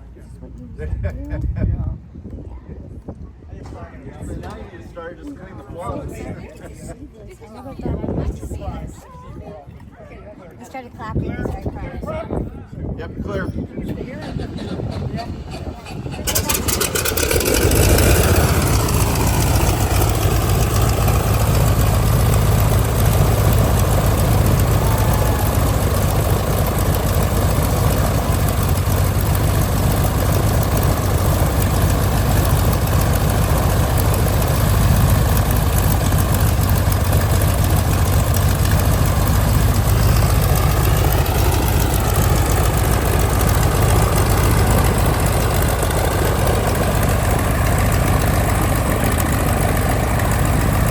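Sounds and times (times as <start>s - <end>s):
aircraft engine starting and idling: 14.1s - 50.9s.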